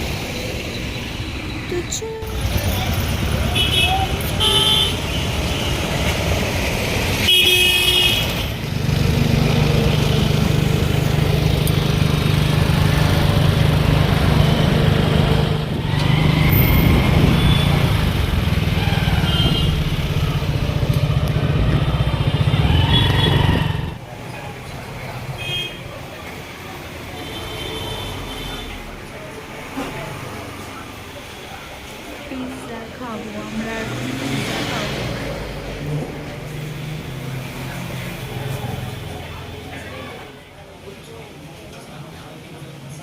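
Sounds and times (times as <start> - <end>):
vehicle horns honking: 3.4 - 5.8, 7.2 - 8.5
motorcycle running: 8.1 - 24.1.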